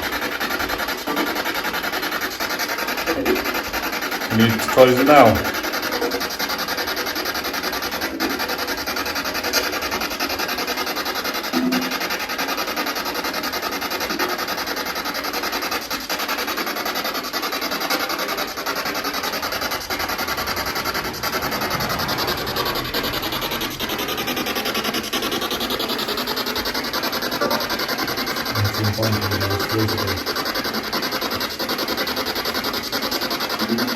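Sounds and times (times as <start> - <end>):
chopped radio static: 4.3 - 6.3, 18.6 - 31.4.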